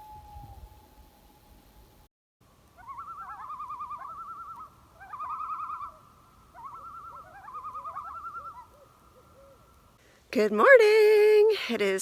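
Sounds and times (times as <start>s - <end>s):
bird trilling: 2.8s - 9.8s
faint looping bird notes: 2.8s - 10.0s.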